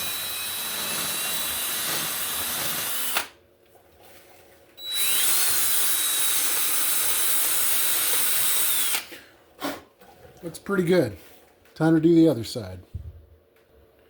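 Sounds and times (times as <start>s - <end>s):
drill whining against steel: 0.0s - 3.3s, 4.8s - 9.1s.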